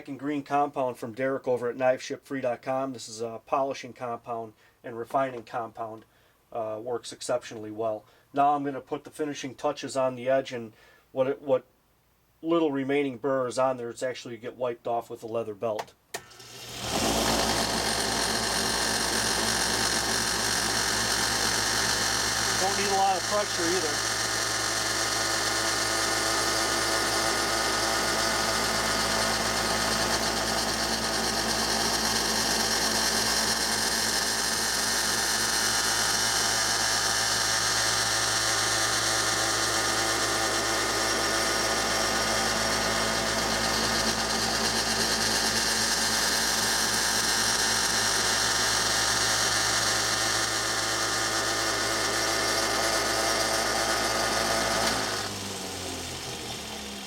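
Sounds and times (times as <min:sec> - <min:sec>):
belt sander motor running: 0:16.2 - 0:57.0.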